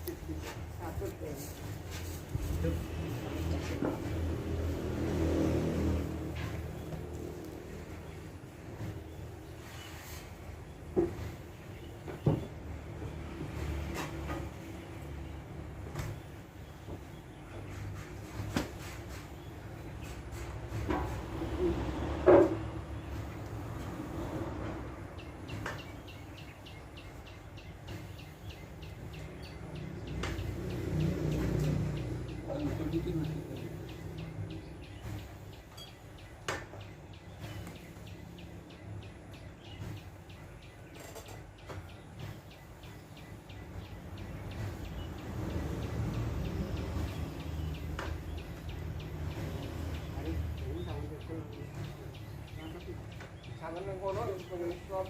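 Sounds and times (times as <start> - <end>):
bird chirping: 25.0 - 55.0.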